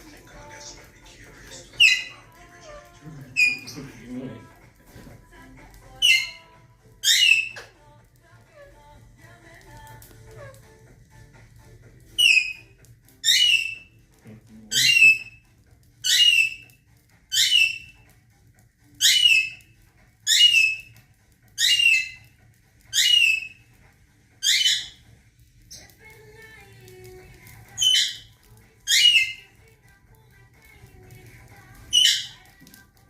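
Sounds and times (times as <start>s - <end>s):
parrot shrill calls: 1.5s - 4.0s, 5.9s - 7.7s, 12.1s - 14.0s, 14.7s - 15.4s, 16.0s - 18.1s, 18.9s - 23.7s, 24.4s - 25.0s, 27.6s - 29.6s, 31.8s - 32.6s.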